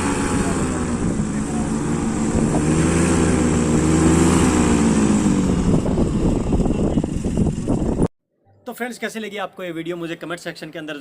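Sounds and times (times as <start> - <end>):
paramotor engine and propeller: 0.0 - 8.1
rough gusting wind noise: 0.0 - 8.1.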